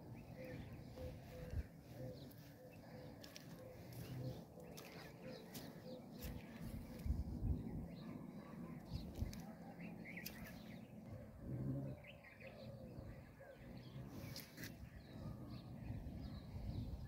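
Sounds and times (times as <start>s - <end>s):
faint outdoor ambience: 0.0s - 17.0s
bird chirps and calls: 0.2s - 7.1s.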